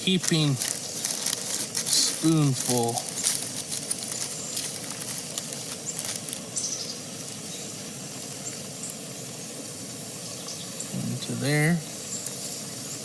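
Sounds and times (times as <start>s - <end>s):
camp stove burner hissing: 0.0s - 13.0s.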